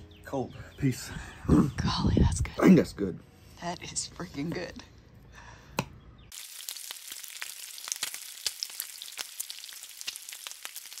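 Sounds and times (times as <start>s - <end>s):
food frying on a griddle: 6.3s - 11.0s.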